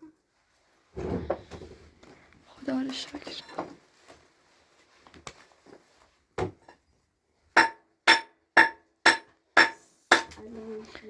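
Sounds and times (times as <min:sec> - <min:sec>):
hammer blows ringing: 0:07.6 - 0:10.3.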